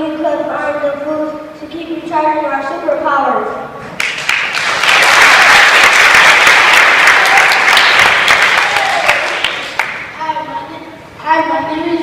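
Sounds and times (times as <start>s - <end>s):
audience clapping: 4.0s - 10.2s.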